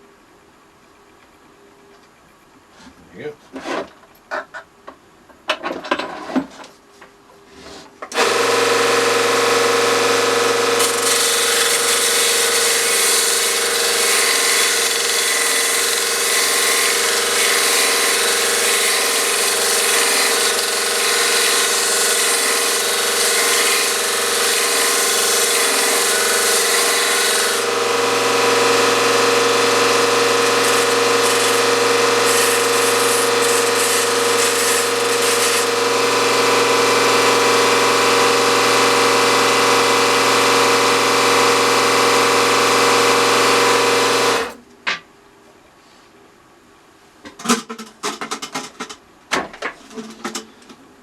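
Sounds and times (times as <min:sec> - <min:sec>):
electric bench power tool humming: 0:08.1 - 0:44.6.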